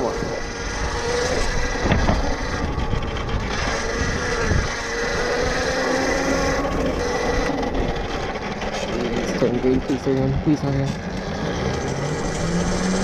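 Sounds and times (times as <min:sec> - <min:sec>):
wind on microphone: 0:00.0 - 0:08.3
electric motor whining: 0:00.0 - 0:13.0
road rumble: 0:00.0 - 0:13.0.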